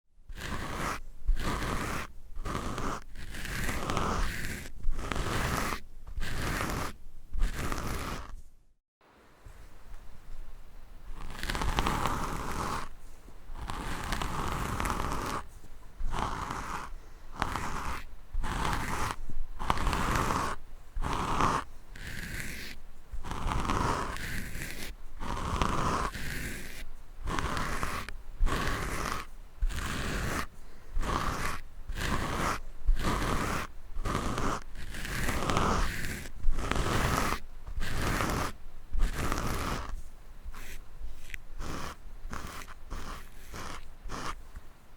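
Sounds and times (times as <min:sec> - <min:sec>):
scratching across a microphone: 0:00.3 - 0:08.6, 0:11.1 - 0:44.7.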